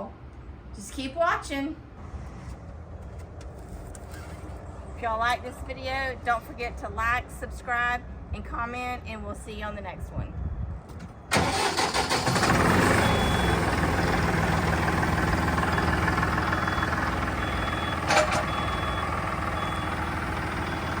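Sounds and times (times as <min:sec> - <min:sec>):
vehicle engine running: 0:11.4 - 0:21.0
faint high reversing beep: 0:13.0 - 0:14.1, 0:15.6 - 0:21.0.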